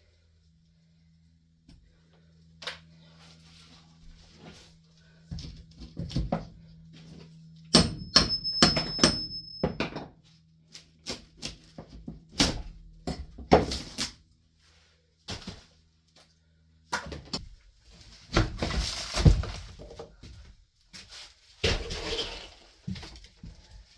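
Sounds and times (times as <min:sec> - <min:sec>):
low hum: 0:00.0 - 0:11.0
sharp strikes with metallic ring: 0:07.7 - 0:09.8.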